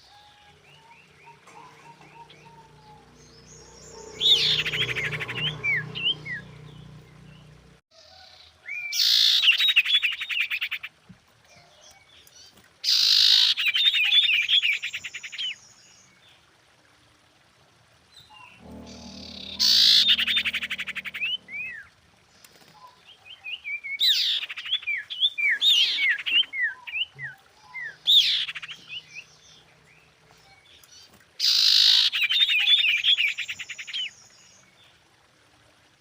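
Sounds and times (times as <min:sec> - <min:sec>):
bird chirps and trills: 0:00.1 - 0:07.5, 0:18.2 - 0:22.0.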